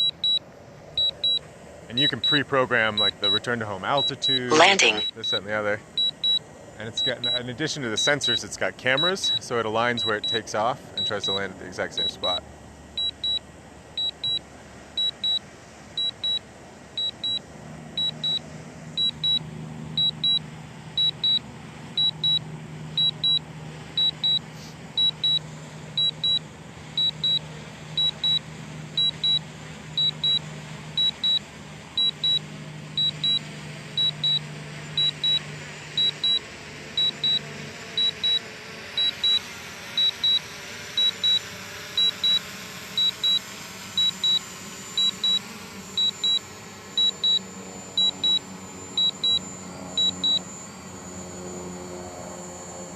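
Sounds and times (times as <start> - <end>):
drone propellers humming: 0.0 - 52.9
remote controller double beeps: 4.0 - 5.2, 11.0 - 11.4, 13.0 - 13.4, 14.0 - 14.4, 20.0 - 20.4, 24.0 - 24.4, 25.0 - 25.4, 26.0 - 26.4, 27.0 - 27.4, 28.0 - 28.4, 29.0 - 29.4, 30.0 - 30.4, 33.0 - 33.4, 34.0 - 34.4, 35.0 - 35.4, 36.0 - 36.4, 37.0 - 37.4, 38.0 - 38.4, 39.0 - 39.4, 40.0 - 40.4, 41.0 - 41.4, 42.0 - 42.4, 43.0 - 43.4, 44.0 - 50.8.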